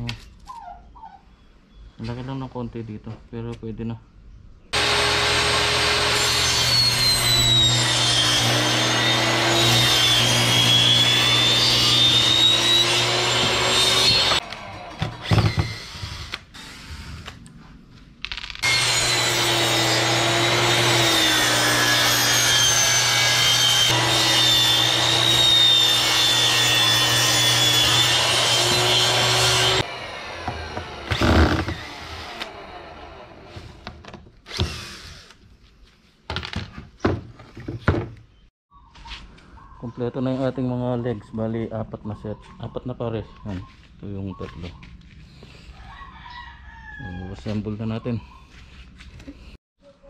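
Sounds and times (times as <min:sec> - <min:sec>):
table saw ripping plywood: 0:04.8 - 0:17.3, 0:18.4 - 0:32.6.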